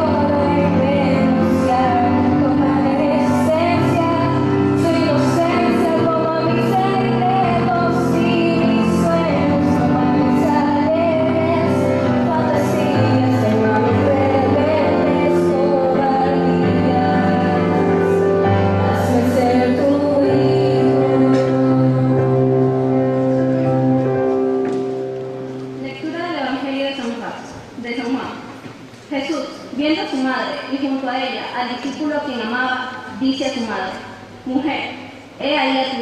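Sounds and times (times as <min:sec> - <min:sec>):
woman singing slow melody: 0:00.0 - 0:23.5
instrumental accompaniment: 0:00.0 - 0:27.2.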